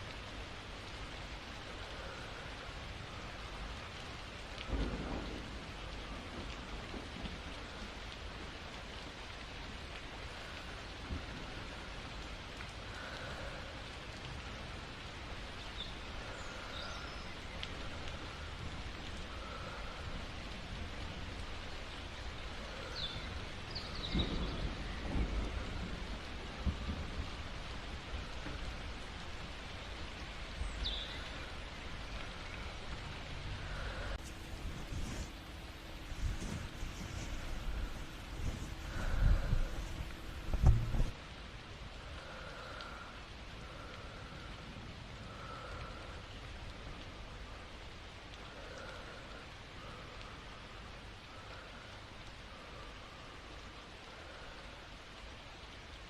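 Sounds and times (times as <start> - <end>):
steady rain: 0.0 - 56.0
low thunder rumbles: 4.6 - 8.7, 22.2 - 41.2.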